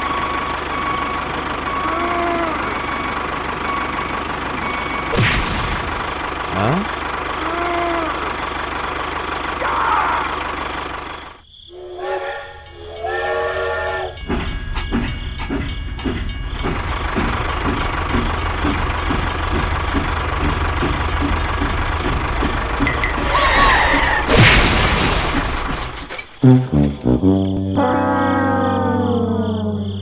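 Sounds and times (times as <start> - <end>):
tractor engine chugging: 0.0 - 26.4
horn honking: 11.7 - 14.3, 26.4 - 30.0.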